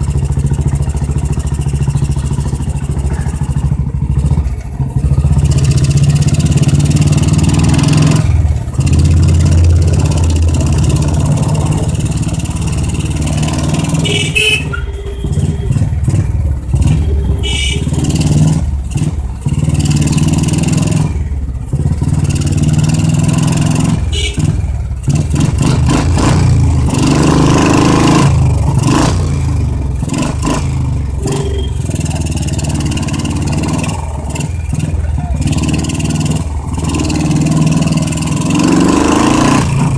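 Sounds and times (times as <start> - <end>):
motorcycle engine and exhaust: 0.0 - 39.9
short high beeps: 31.2 - 31.9.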